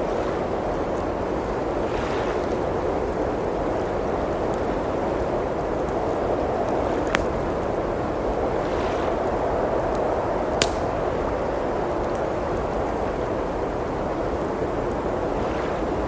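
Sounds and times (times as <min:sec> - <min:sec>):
blizzard wind blowing: 0:00.0 - 0:16.0
wood fire crackling: 0:05.5 - 0:08.5, 0:09.8 - 0:15.0.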